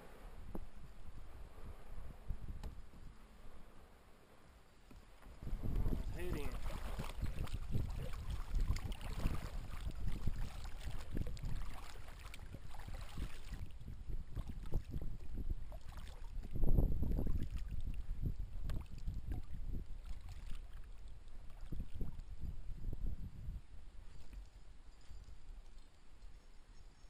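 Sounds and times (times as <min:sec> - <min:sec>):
wind buffeting microphone: 0:00.0 - 0:03.3, 0:05.3 - 0:24.4
water lapping against hull: 0:04.8 - 0:23.0.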